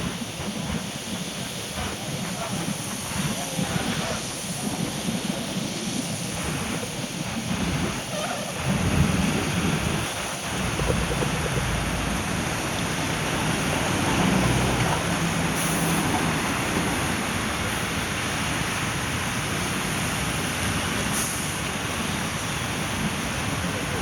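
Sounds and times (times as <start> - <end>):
rain rushing: 0.0 - 24.0
low rumble: 9.9 - 14.8.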